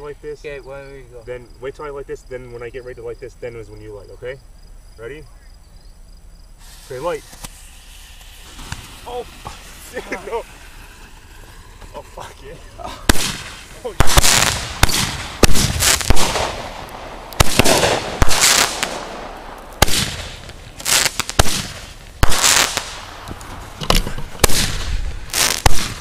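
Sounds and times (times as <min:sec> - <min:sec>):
hissing crackle: 0:04.2 - 0:26.0
fireworks bangs and pops: 0:06.6 - 0:26.0.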